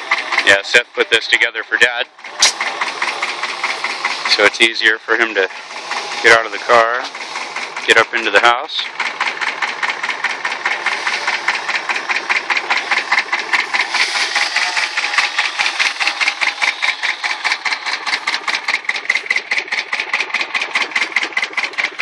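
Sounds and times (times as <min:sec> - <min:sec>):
small engine running: 0:00.0 - 0:22.0
hiss: 0:13.7 - 0:16.2.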